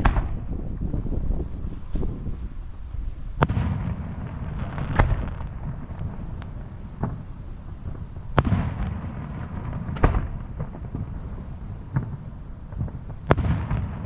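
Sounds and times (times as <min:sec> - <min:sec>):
fireworks sharp bangs: 0:00.0 - 0:02.6, 0:03.3 - 0:14.0
fireworks rumble: 0:00.0 - 0:14.0
fireworks small pops: 0:04.6 - 0:14.0.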